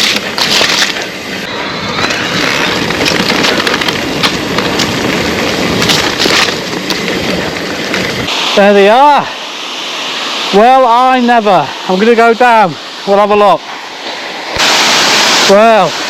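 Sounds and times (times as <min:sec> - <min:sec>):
bike tyre rumble: 0:00.0 - 0:08.5
bike clatter: 0:02.4 - 0:08.3
short bursts of hiss: 0:13.6 - 0:16.0.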